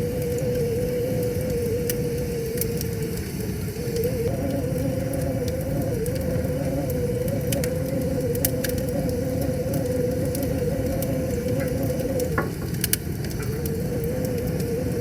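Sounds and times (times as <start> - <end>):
steady humming tone: 0.0 - 15.0
wood fire crackling and popping: 0.0 - 15.0.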